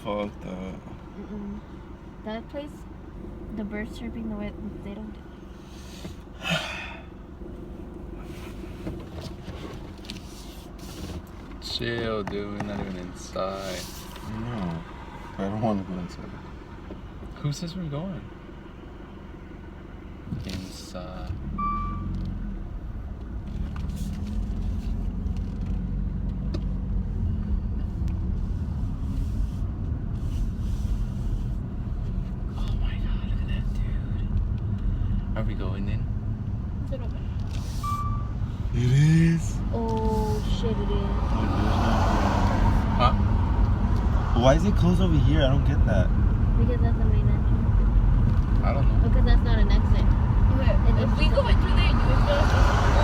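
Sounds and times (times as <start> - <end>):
car interior rumble: 0.0 - 53.0
person breathing sharply: 5.5 - 7.2.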